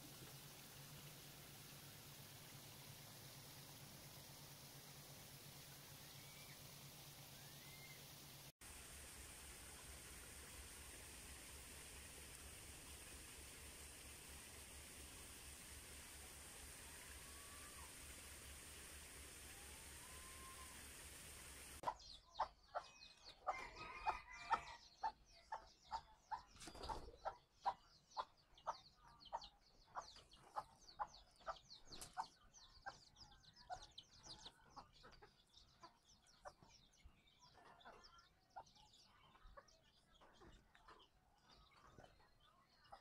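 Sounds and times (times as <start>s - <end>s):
chicks peeping: 21.8s - 22.9s, 25.0s - 42.1s.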